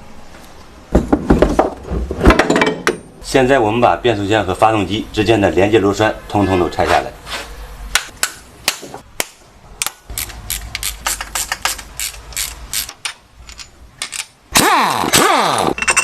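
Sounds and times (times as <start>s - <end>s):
ratchet wrench clicking: 10.1s - 16.0s.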